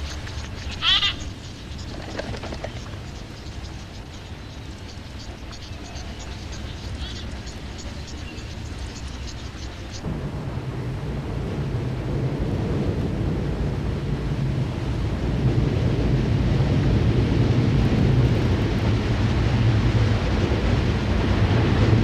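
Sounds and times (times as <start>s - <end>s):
windy hiss: 0.0s - 22.0s
rumble of thunder: 9.8s - 22.0s.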